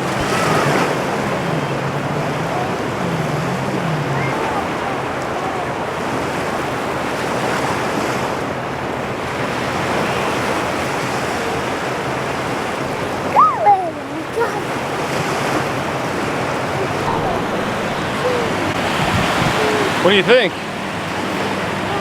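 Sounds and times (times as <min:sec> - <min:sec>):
high cry gliding downward: 0:00.0 - 0:06.6, 0:13.1 - 0:22.0
waves washing on shore: 0:00.0 - 0:22.0
wind buffeting microphone: 0:00.0 - 0:22.0.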